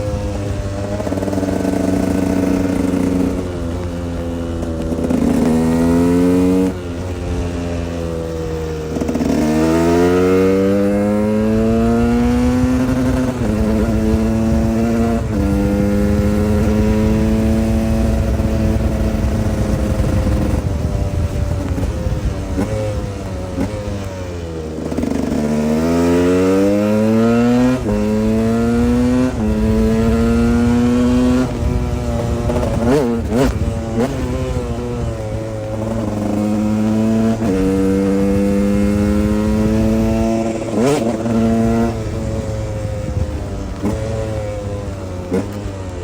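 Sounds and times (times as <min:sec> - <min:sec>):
motorcycle engine shifting gears: 0:00.0 - 0:46.0
motorcycle throttle blips: 0:00.0 - 0:46.0.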